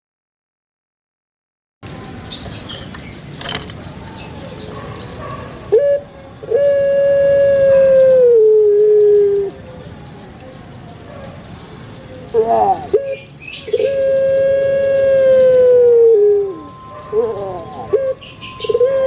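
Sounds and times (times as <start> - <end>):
dog yelping: 4.8 - 5.6, 16.5 - 19.0
dog howling: 13.8 - 19.0.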